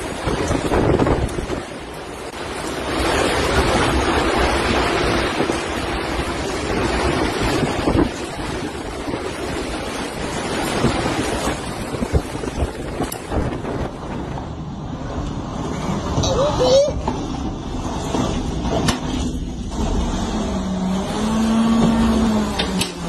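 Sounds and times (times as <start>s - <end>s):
storm wind gusting: 0.0s - 23.0s.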